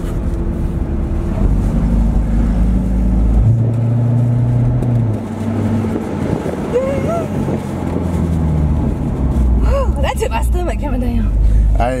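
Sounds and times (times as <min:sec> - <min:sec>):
car engine running: 0:00.0 - 0:12.0
wind on microphone: 0:05.4 - 0:09.2.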